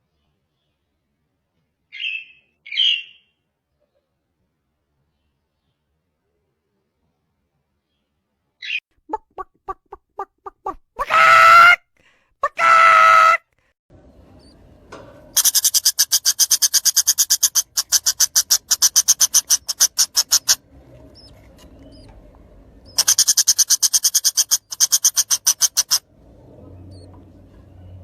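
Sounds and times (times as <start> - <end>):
bird rattling trill: 15.4 - 22.1, 22.9 - 26.0.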